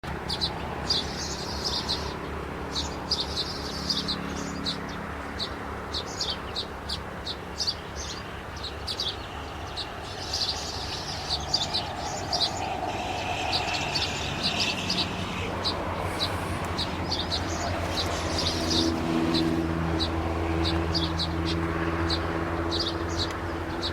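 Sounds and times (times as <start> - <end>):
small bird chirping: 5.4 - 21.4.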